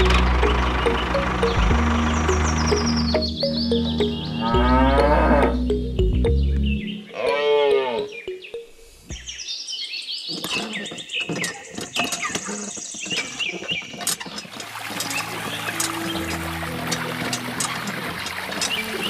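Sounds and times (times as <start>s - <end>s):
birds chirping: 0.0s - 19.0s
cow mooing: 4.2s - 5.7s, 7.1s - 8.2s.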